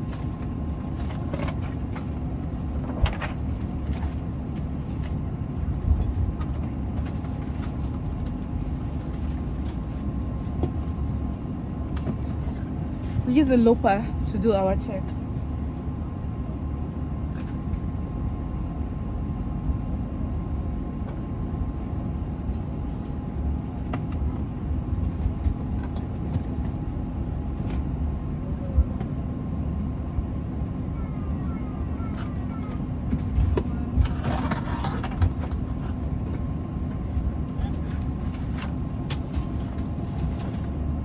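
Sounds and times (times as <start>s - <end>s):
airliner cabin hum: 0.0s - 41.0s
distant voices: 30.7s - 35.0s.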